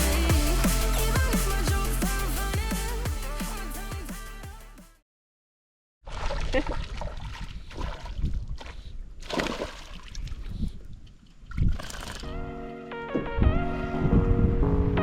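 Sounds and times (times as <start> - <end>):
music: 0.0 - 5.0, 12.2 - 15.0
water splashing and sloshing: 6.0 - 12.4.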